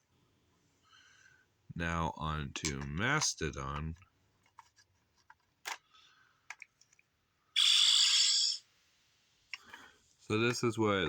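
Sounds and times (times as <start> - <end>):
harsh hissy toy sound: 7.6 - 8.6.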